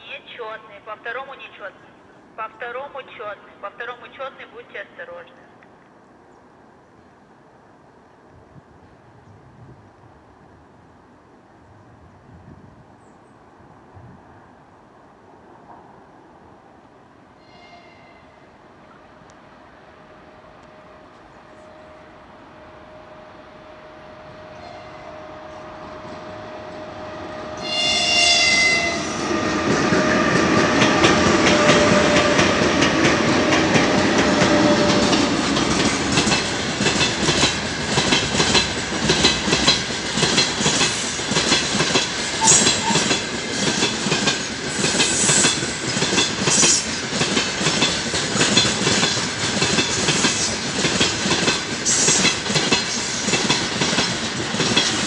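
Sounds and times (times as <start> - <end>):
passing freight train rumble: 13.8 - 55.0
train horn blast: 17.4 - 19.2, 19.9 - 29.4, 42.4 - 43.1
wheels clacking over rail joints: 29.2 - 55.0.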